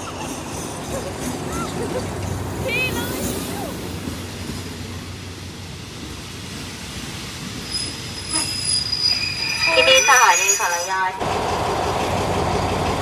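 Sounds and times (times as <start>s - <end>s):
train wheels rumbling on rail: 0.0s - 10.0s, 11.2s - 13.0s
high wheel squeal: 7.6s - 11.3s.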